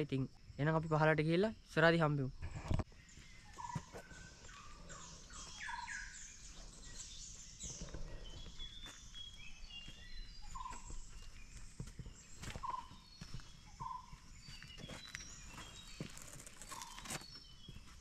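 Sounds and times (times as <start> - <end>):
wild birds chirping: 0.0 - 18.0
knocks and scuffs: 3.2 - 4.2, 7.9 - 18.0.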